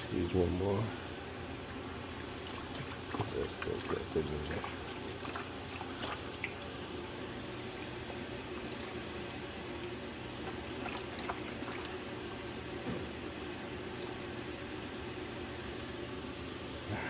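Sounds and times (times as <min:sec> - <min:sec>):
steady low hum: 0:00.0 - 0:17.0
water sloshing in a bucket: 0:02.1 - 0:14.8.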